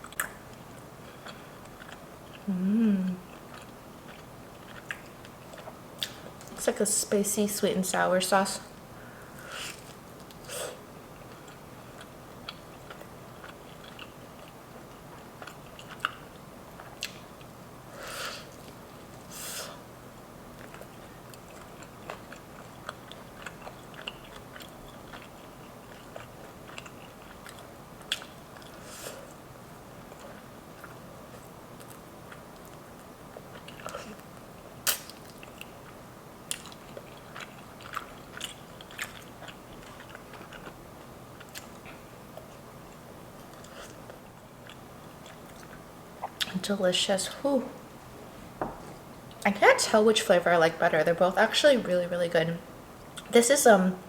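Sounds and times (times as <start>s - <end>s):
chewing and biting chicken wing: 11.2s - 17.5s, 20.6s - 29.4s, 30.0s - 46.5s.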